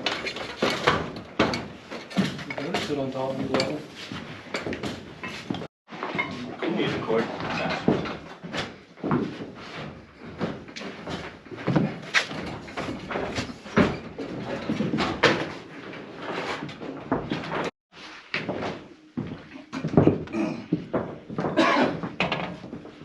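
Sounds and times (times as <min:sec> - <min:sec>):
carpentry knocks and thumps: 0:00.0 - 0:06.4, 0:10.2 - 0:17.7, 0:19.8 - 0:22.9.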